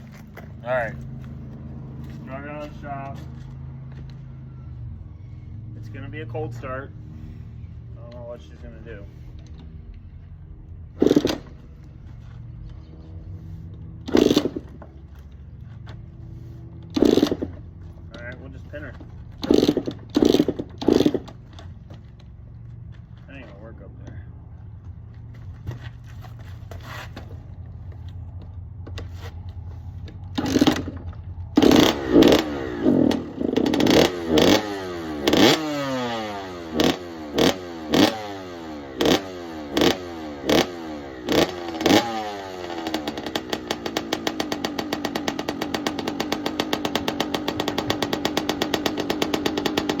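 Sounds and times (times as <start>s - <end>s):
dirt bike engine revving: 10.9s - 12.0s, 13.5s - 15.0s, 16.4s - 21.8s, 30.2s - 50.0s.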